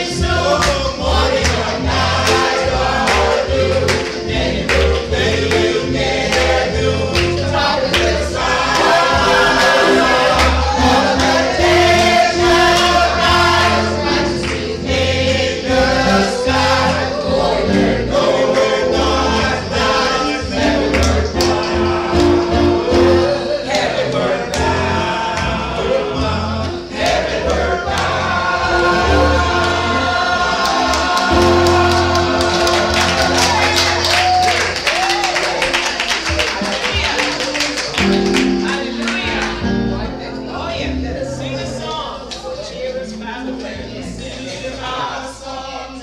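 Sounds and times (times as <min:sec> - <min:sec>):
choir singing a hymn: 0:00.0 - 0:34.8, 0:38.0 - 0:46.0
sustained bass notes: 0:00.0 - 0:34.8
instrumental accompaniment: 0:00.0 - 0:35.2, 0:36.2 - 0:41.3.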